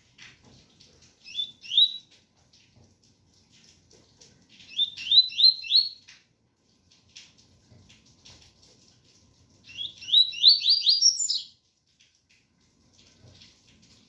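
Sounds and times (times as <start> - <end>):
faint rain patter: 0.0 - 14.0
bird singing whistled notes: 1.3 - 2.0, 4.7 - 6.0, 9.7 - 11.5.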